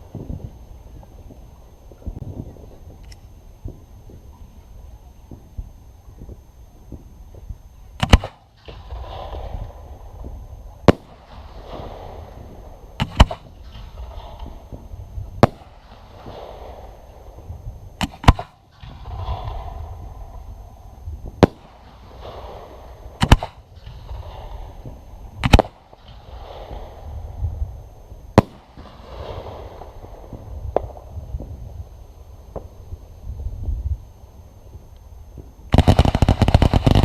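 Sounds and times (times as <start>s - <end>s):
soft crackling rustle: 0.0s - 37.0s
fireworks bursting with sharp bangs: 5.3s - 33.4s, 34.1s - 37.0s.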